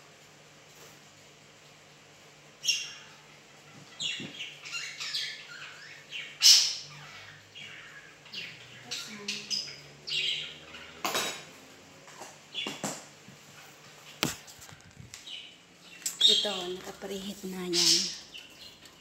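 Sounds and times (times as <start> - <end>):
bird chirping: 2.6 - 11.0, 15.2 - 19.0.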